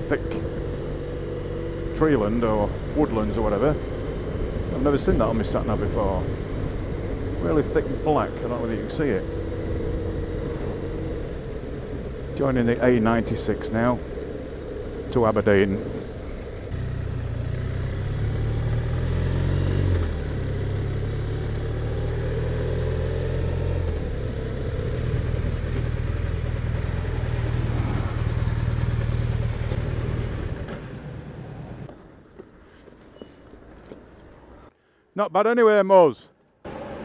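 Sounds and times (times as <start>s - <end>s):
motorcycle engine running: 0.0s - 31.4s
wind and road noise: 0.0s - 35.0s, 35.9s - 37.0s.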